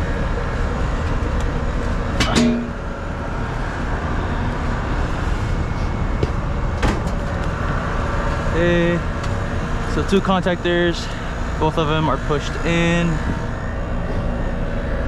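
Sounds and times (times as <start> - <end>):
air conditioner unit droning: 0.0 - 15.0
metallic clank: 2.2 - 2.8.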